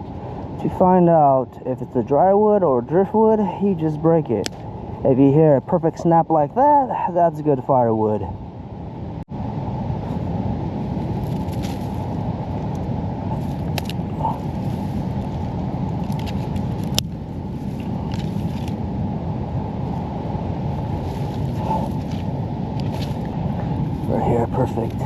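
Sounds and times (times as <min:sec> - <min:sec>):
ocean surf rumble: 0:00.0 - 0:25.0
wind on microphone: 0:07.9 - 0:25.0.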